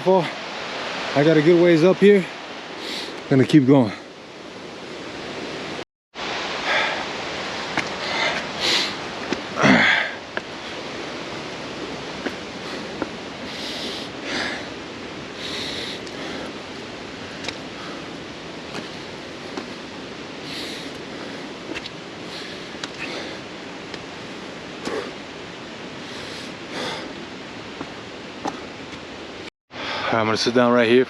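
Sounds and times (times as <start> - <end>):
steady rushing noise: 0.0 - 29.5
heavy breathing puffs: 7.9 - 9.0, 12.3 - 14.7, 15.4 - 16.6, 20.4 - 23.5, 26.0 - 27.2.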